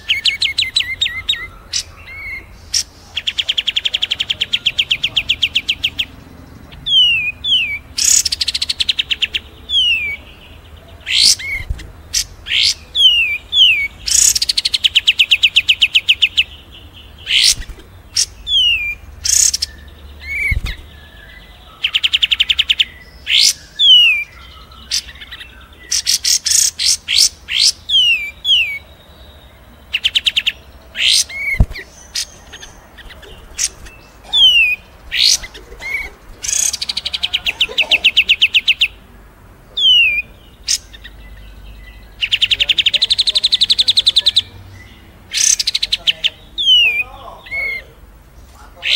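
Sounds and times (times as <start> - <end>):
sharp high bird chirps: 0.0 - 10.4, 11.0 - 39.0, 39.8 - 48.0
bird rattling trills: 31.2 - 37.0.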